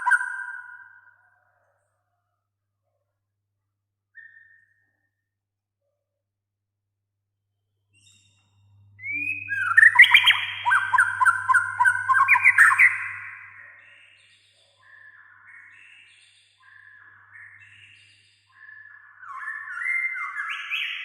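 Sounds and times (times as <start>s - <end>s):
bird whistling and chattering: 0.0s - 0.8s, 9.0s - 13.8s, 18.6s - 21.0s.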